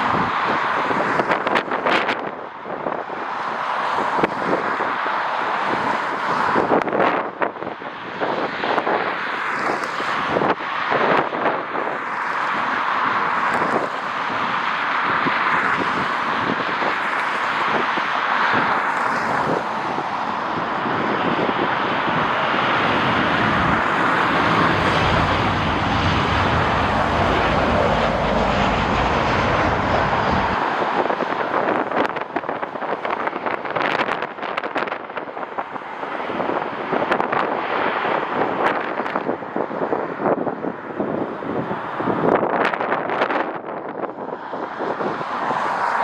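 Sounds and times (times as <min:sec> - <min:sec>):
wind buffeting microphone: 0:00.0 - 0:46.0
jet engine roaring: 0:12.0 - 0:34.0.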